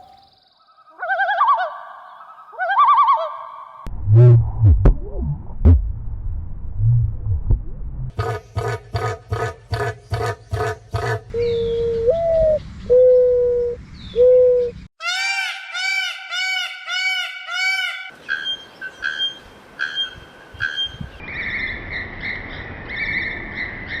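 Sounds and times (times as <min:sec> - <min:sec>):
buzzy pulsing bird call: 0:08.2 - 0:12.3.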